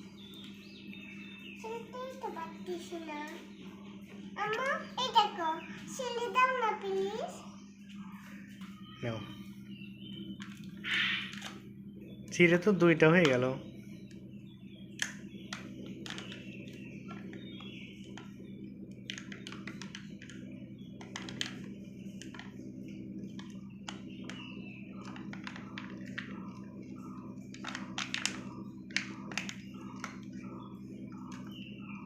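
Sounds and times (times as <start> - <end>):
steady low hum: 0.0 - 32.0
wrapper crinkling and tapping: 19.1 - 20.4, 21.0 - 21.6, 27.5 - 30.3.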